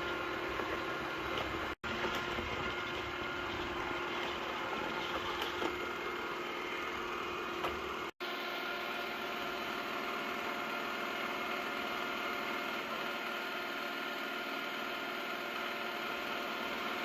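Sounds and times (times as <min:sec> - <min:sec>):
robot vacuum whirring: 0:00.0 - 0:08.9.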